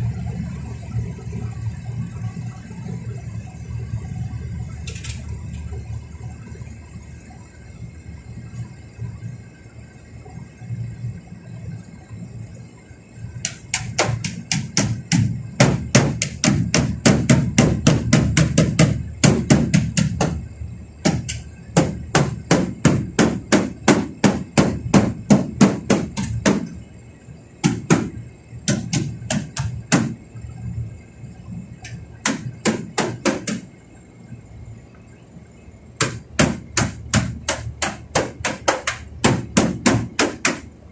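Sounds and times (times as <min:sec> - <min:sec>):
steady low hum: 0:00.0 - 0:40.9
fast hammering: 0:13.4 - 0:26.8, 0:27.6 - 0:30.2, 0:31.8 - 0:33.7, 0:36.0 - 0:40.7.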